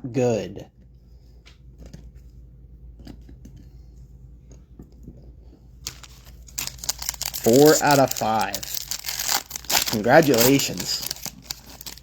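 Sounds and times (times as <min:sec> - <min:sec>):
wrapper crinkling as torn open: 0:05.9 - 0:12.0.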